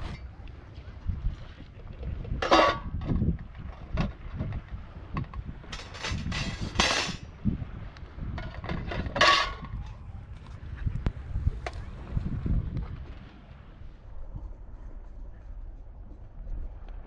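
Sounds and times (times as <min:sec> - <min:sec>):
wind rumble on microphone: 0:00.0 - 0:17.0
light clinks and knocks: 0:02.4 - 0:07.2.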